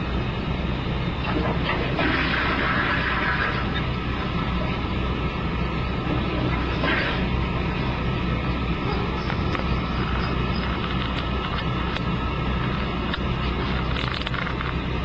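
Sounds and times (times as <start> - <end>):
toilet water rushing: 1.2 - 4.0, 6.1 - 7.4.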